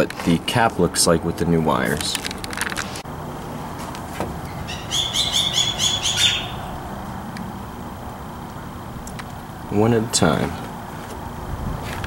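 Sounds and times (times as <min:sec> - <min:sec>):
small bird trilling: 0:04.5 - 0:06.8.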